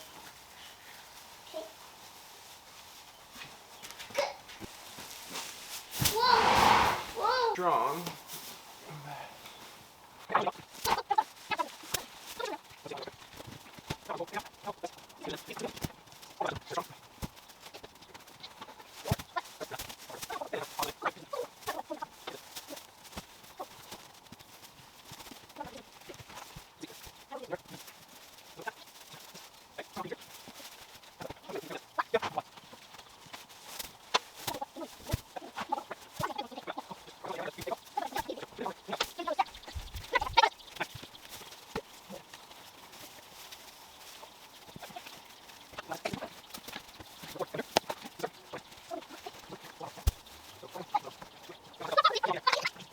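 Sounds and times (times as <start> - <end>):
farm animal calls: 6.1 - 8.0, 17.6 - 22.8, 34.1 - 52.9
chickens clucking: 28.2 - 52.9.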